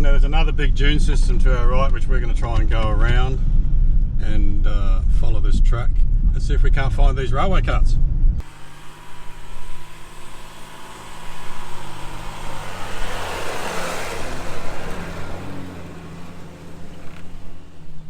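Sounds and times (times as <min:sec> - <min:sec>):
car engine running: 0:08.4 - 0:18.0.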